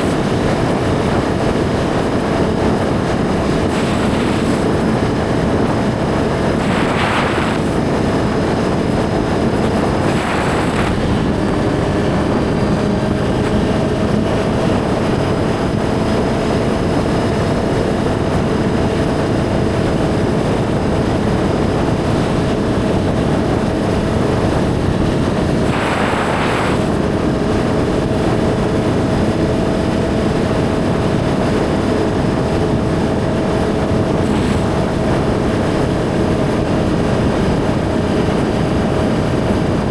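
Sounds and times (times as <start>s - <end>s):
wind rushing on microphone: 0.0s - 39.9s
motorcycle engine running: 6.0s - 16.5s.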